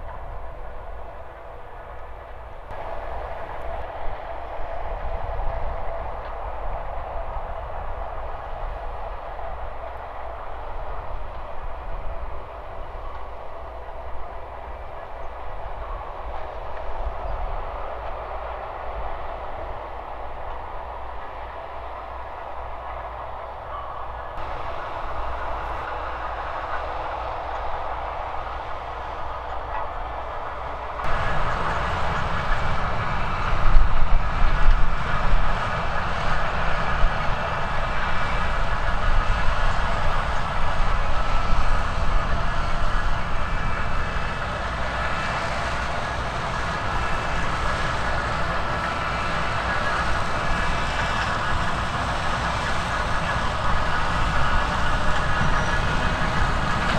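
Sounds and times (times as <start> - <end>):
heavy farm machinery running: 2.7 - 3.8, 24.4 - 25.9, 31.1 - 56.9.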